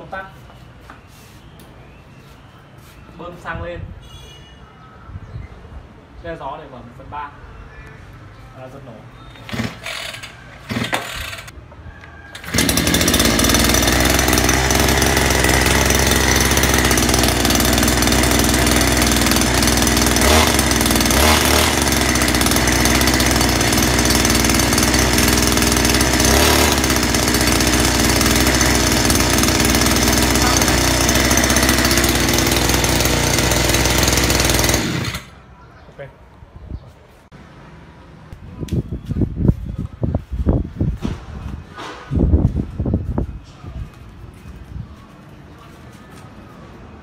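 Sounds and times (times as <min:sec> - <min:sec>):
brush cutter pull-start: 0:09.4 - 0:11.5, 0:12.3 - 0:35.4
two-stroke engine running loudly: 0:12.4 - 0:35.3.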